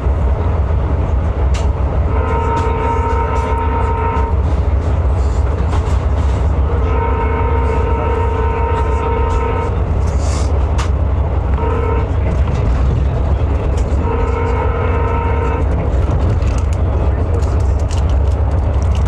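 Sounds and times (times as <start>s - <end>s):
low rumble of train: 0.0s - 19.0s
train horn blasts: 2.0s - 4.6s, 6.3s - 10.1s, 11.4s - 12.7s, 13.6s - 16.0s.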